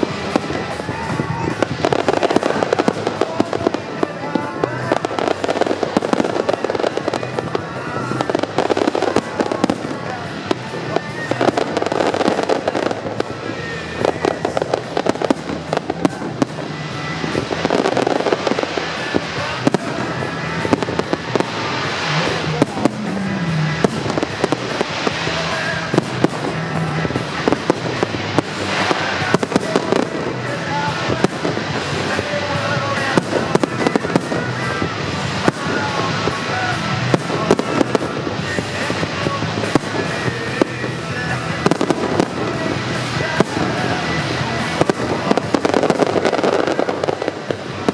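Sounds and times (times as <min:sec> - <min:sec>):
fireworks banging and crackling: 0:00.0 - 0:47.9
music playing: 0:00.0 - 0:47.9.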